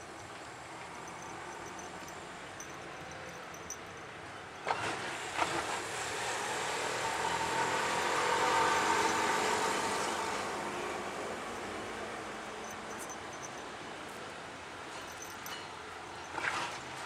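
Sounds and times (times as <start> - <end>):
vehicle passing by: 4.7 - 13.3.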